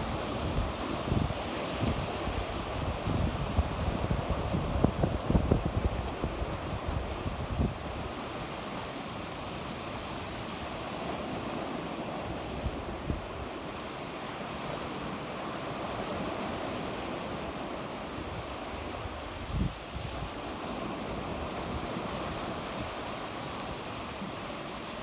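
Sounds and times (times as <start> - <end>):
wind rumbling on microphone: 0.0 - 8.3, 18.2 - 23.1
sea waves washing onto shore: 0.0 - 25.0.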